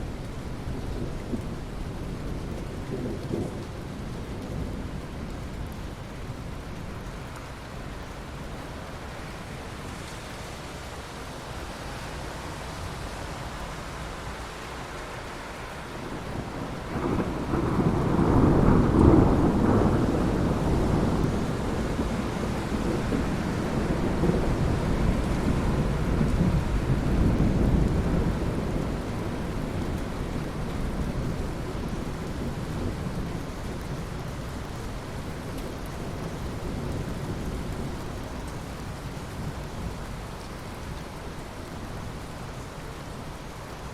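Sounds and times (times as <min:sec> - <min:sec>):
steady rain falling: 0:00.0 - 0:43.9
thunder rumbling: 0:16.0 - 0:34.6.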